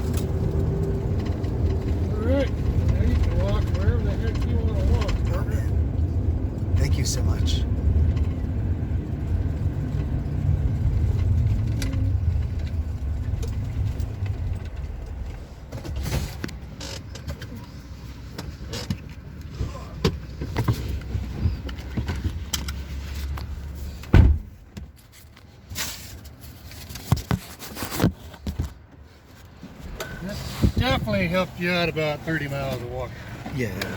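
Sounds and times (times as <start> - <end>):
car engine rumble: 0.0 - 33.9
road noise: 0.0 - 33.9
loud thump: 24.1 - 24.5.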